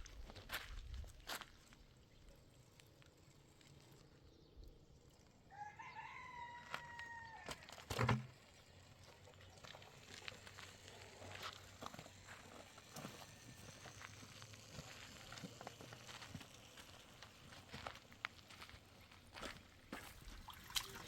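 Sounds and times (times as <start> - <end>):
rooster crowing: 5.5 - 7.8.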